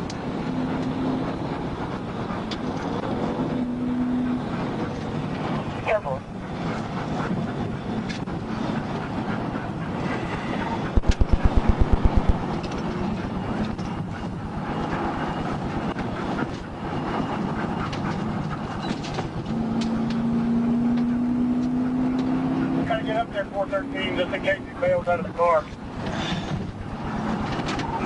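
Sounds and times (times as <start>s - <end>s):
car road and engine noise: 0.0s - 28.0s
heavy low thuds: 10.9s - 12.6s.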